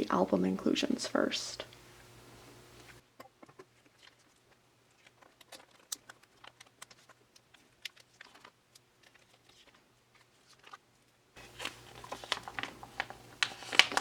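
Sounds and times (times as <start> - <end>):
plastic card sleeves crinkling: 3.8 - 10.8, 11.4 - 14.0.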